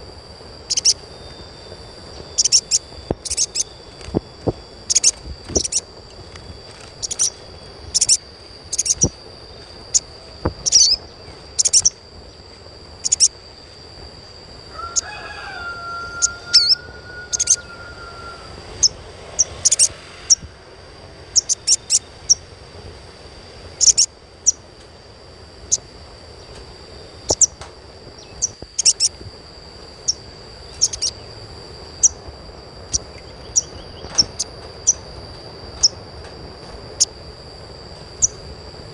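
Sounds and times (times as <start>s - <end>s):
low drawn-out bird call: 0.0s - 22.5s, 30.0s - 36.1s
steady high tone: 0.0s - 38.9s
bird giving sharp high chirps: 0.7s - 12.0s, 13.0s - 13.4s, 14.9s - 20.5s, 23.8s - 24.6s, 27.3s - 27.6s, 28.2s - 29.2s, 30.0s - 31.2s.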